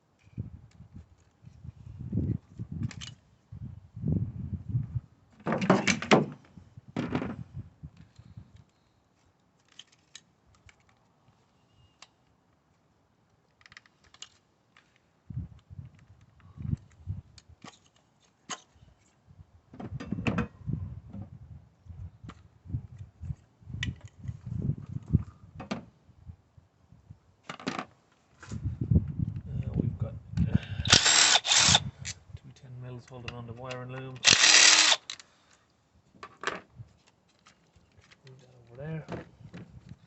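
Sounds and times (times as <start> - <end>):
tools clicking and clunking: 30.9 - 32.2, 33.1 - 35.3.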